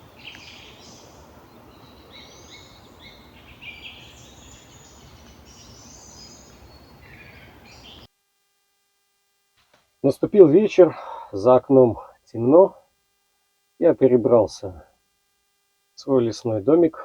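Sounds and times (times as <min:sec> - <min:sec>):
songbirds chirping and trilling: 0:00.0 - 0:08.1
steady outdoor hiss: 0:00.0 - 0:17.0.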